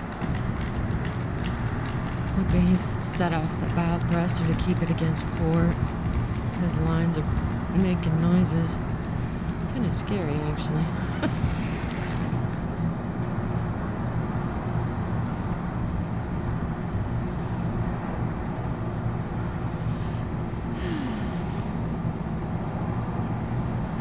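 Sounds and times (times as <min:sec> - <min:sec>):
ship machinery humming: 0:00.0 - 0:12.8.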